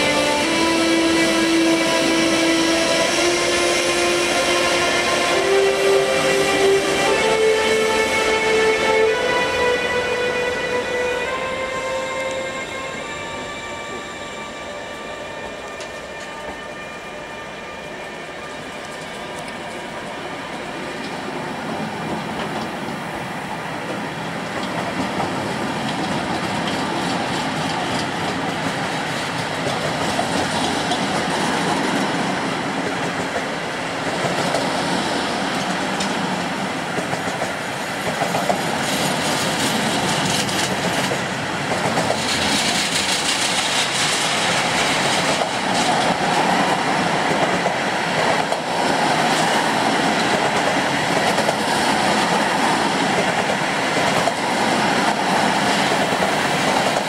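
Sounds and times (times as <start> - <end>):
train wheels rumbling on rails: 0.0 - 57.0
clickety-clack over rail joints: 21.0 - 22.9, 23.8 - 57.0.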